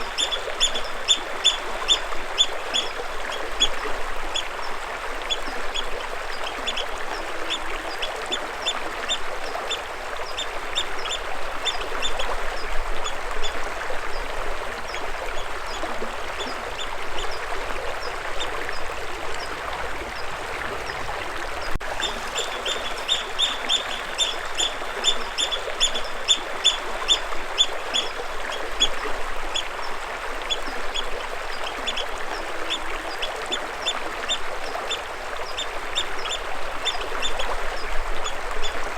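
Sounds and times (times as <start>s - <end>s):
rushing water: 0.0s - 38.9s
birds chirping: 20.1s - 28.2s.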